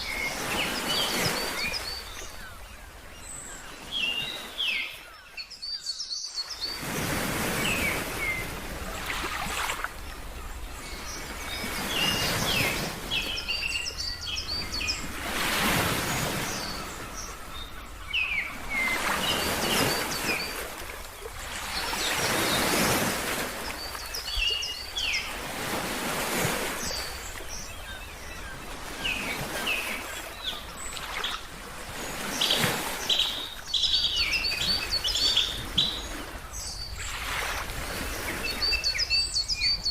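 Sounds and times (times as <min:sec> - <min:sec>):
ocean waves washing: 0:00.0 - 0:04.8, 0:06.5 - 0:39.9
small birds chirping: 0:07.6 - 0:25.3, 0:32.1 - 0:37.6.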